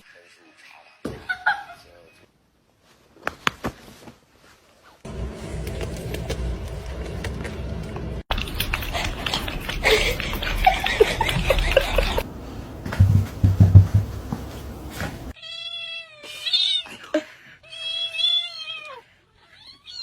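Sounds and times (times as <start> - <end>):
heavy low thumps: 12.8 - 14.9.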